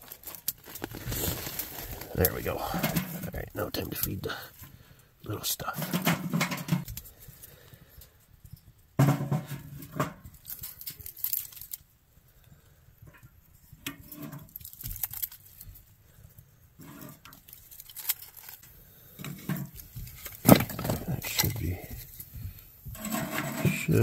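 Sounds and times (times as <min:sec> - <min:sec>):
kindling clicking and rustling: 0:10.1 - 0:11.9, 0:17.1 - 0:22.3.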